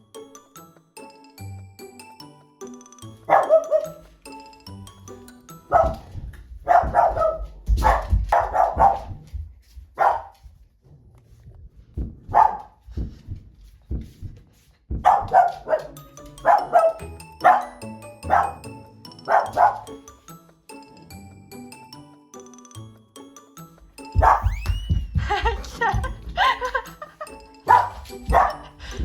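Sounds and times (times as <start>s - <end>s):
background music: 0.0s - 8.9s, 15.3s - 29.0s
dog barking: 3.3s - 4.0s, 5.7s - 9.2s, 10.0s - 10.4s, 12.3s - 12.8s, 15.0s - 20.0s, 24.2s - 24.6s, 27.7s - 28.8s.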